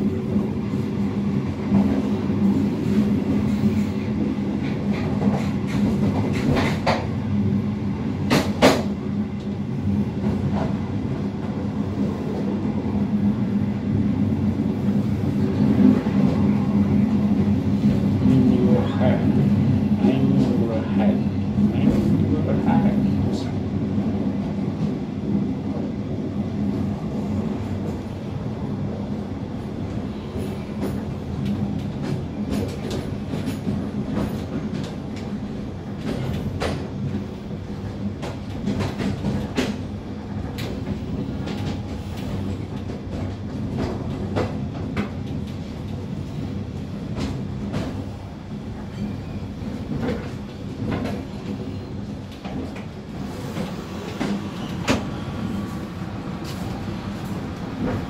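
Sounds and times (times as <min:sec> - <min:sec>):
train carriage rumbling: 0:00.0 - 0:58.0.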